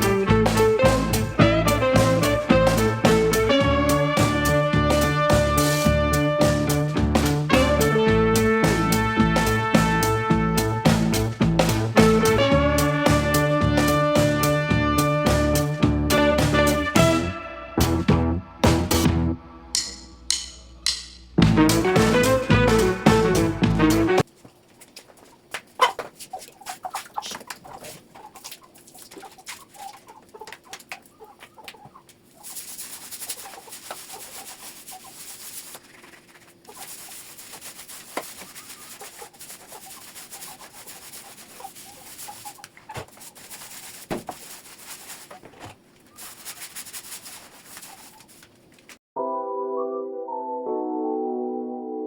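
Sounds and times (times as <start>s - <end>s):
rubbing hiss: 31.3s - 45.4s, 46.0s - 48.5s.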